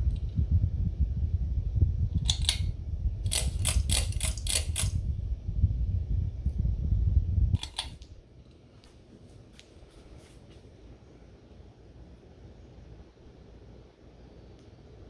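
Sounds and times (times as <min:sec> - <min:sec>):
fan air buffeting microphone: 0:00.0 - 0:15.0
sharp mechanical clicks: 0:02.2 - 0:05.0, 0:07.6 - 0:08.1.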